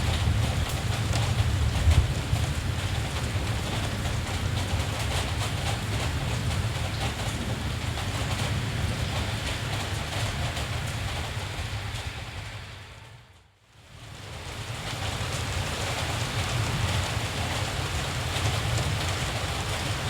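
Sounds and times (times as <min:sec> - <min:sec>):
rain hiss: 0:00.0 - 0:20.0.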